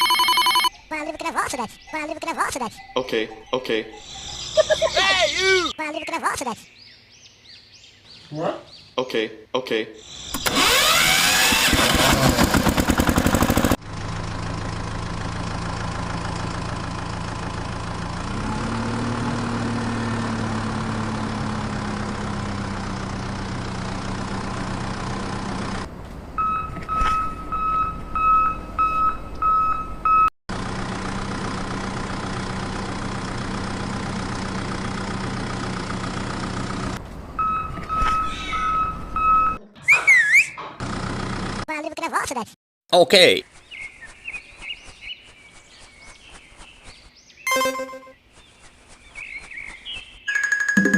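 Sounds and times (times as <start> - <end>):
vehicle engine running: 10.2 - 26.7, 29.9 - 38.0, 40.8 - 41.7
loud rattling clatter: 10.4 - 13.8
reversing beeper: 26.4 - 30.3, 37.4 - 39.6, 47.5 - 48.2.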